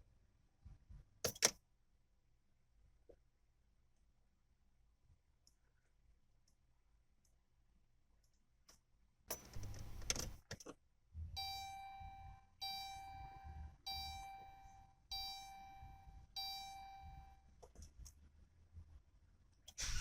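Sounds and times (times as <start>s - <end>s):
vehicle warning chime: 11.4s - 17.5s.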